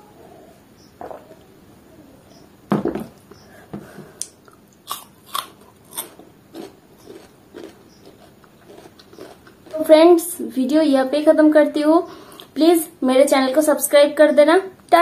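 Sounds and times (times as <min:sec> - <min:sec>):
wet chewing and lip-smacking: 0:04.2 - 0:09.8.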